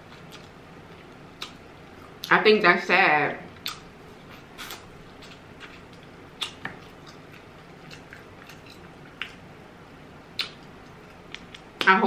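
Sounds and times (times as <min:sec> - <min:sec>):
close chewing: 0:03.6 - 0:09.4
wet mouth clicks and smacks: 0:10.4 - 0:10.7, 0:11.3 - 0:11.9.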